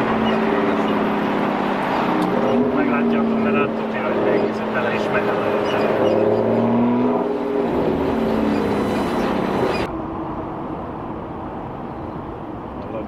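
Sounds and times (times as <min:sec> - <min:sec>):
vehicle engine pulling: 0:00.0 - 0:09.9
dull road noise: 0:00.0 - 0:13.0.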